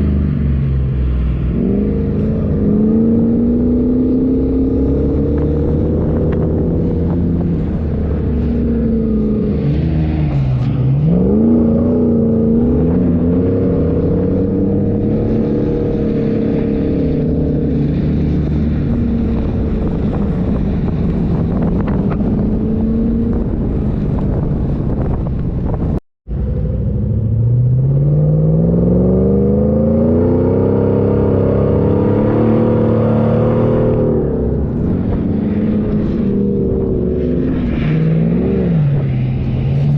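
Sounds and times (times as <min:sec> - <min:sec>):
engine revving under load: 0:00.0 - 0:24.3, 0:26.3 - 0:39.9.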